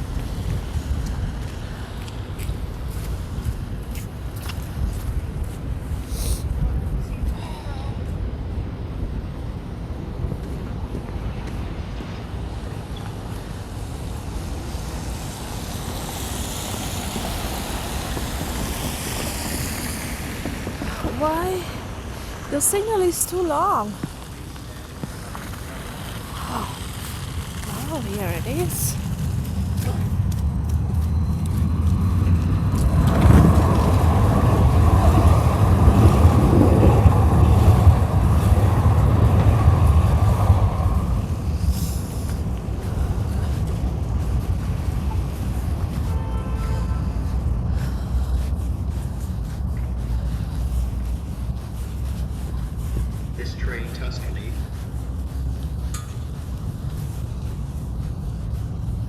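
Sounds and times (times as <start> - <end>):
light rail train rumbling: 0.0 - 59.0
wind buffeting microphone: 0.0 - 59.0
hiss: 6.0 - 6.5, 12.8 - 21.2, 24.0 - 30.0.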